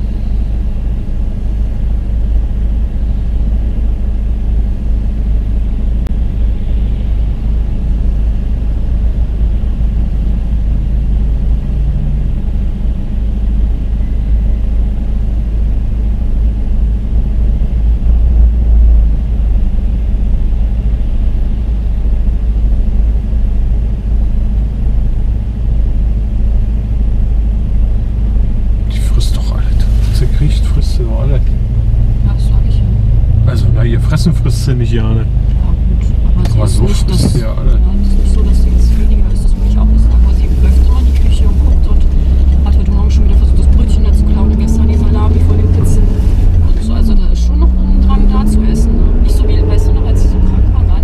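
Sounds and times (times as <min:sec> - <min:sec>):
car engine idling: 0:00.0 - 0:51.0.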